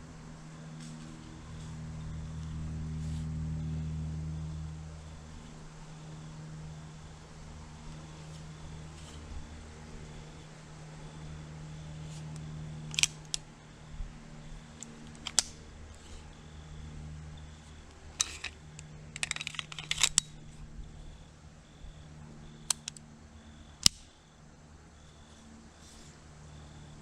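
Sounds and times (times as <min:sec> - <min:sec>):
steady low hum: 0:00.0 - 0:27.0
rattling clicks: 0:12.0 - 0:13.5, 0:14.7 - 0:16.3, 0:17.4 - 0:21.2, 0:22.6 - 0:23.0
sharp mechanical clicks: 0:12.1 - 0:13.6, 0:14.5 - 0:16.8, 0:17.4 - 0:21.3, 0:21.9 - 0:24.4.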